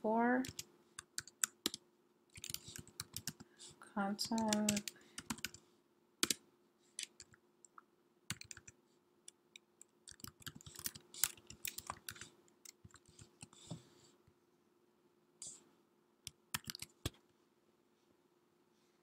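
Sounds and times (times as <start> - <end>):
keyboard typing clicks: 0.4 - 3.5, 4.2 - 5.6, 8.3 - 8.8, 10.1 - 13.6, 16.3 - 17.2.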